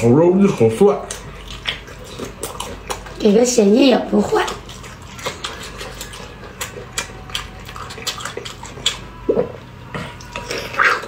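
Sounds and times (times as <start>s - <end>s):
wet chewing: 0.0s - 11.0s
lip smacks and squelches: 1.0s - 3.2s, 4.3s - 9.5s.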